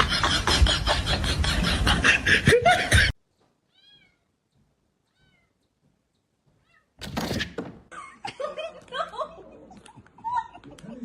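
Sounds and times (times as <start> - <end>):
cat meowing: 3.7 - 4.4, 5.0 - 5.6, 6.6 - 7.0.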